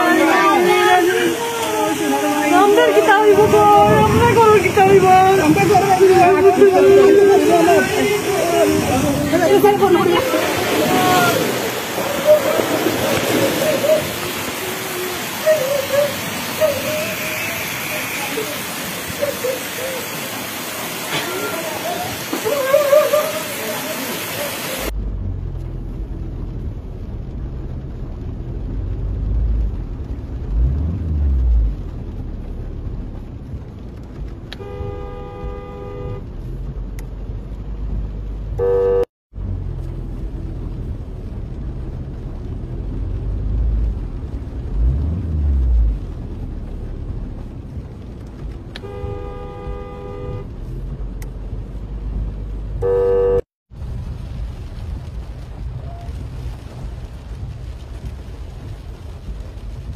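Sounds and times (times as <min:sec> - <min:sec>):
low engine rumble: 0:24.9 - 0:59.9
horn blasts: 0:34.6 - 0:36.3, 0:38.6 - 0:39.1, 0:48.8 - 0:50.6, 0:52.8 - 0:53.5.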